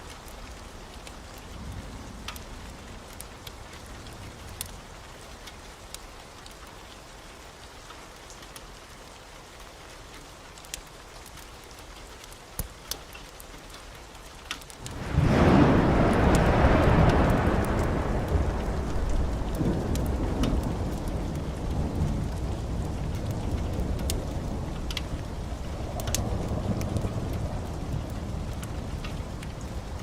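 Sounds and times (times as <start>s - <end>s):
heavy rain falling: 0.0s - 30.0s
thunder rumbling: 14.8s - 30.0s.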